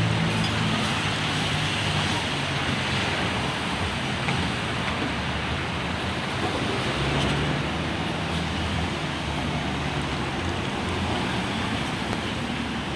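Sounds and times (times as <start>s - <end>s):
road traffic noise: 0.0s - 12.9s.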